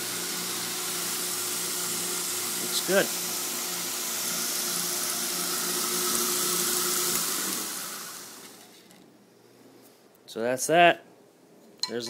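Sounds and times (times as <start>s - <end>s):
belt grinder running: 0.0s - 8.8s
grinder motor winding down: 0.0s - 8.8s.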